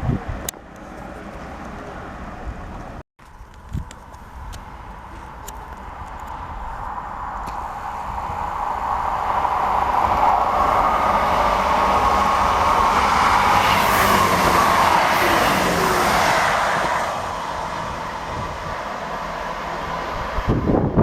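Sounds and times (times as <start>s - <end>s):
train passing: 5.8s - 21.0s.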